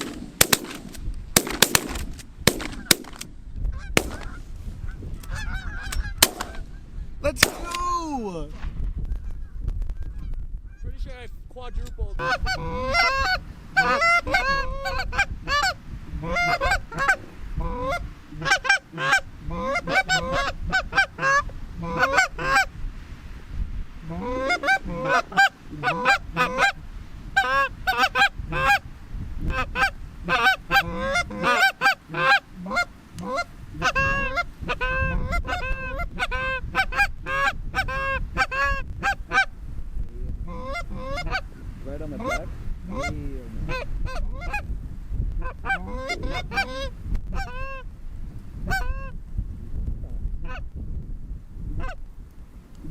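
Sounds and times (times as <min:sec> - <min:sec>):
geese honking: 0:02.6 - 0:08.0, 0:11.7 - 0:22.7, 0:24.0 - 0:28.9, 0:29.5 - 0:39.6, 0:40.4 - 0:44.7, 0:45.4 - 0:47.9, 0:48.6 - 0:49.2.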